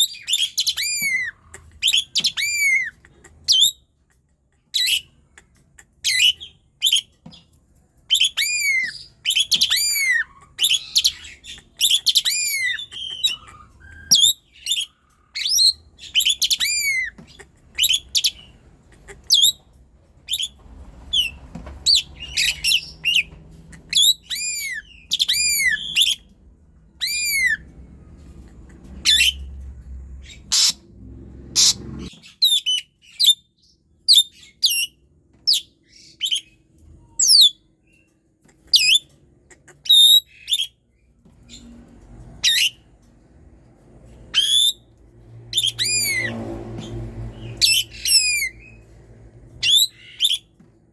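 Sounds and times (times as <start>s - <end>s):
starling singing whistled notes: 8.1s - 17.1s, 20.3s - 26.3s, 27.0s - 27.6s, 29.0s - 29.5s, 44.4s - 44.9s, 45.5s - 46.4s, 47.4s - 48.8s, 49.6s - 50.5s.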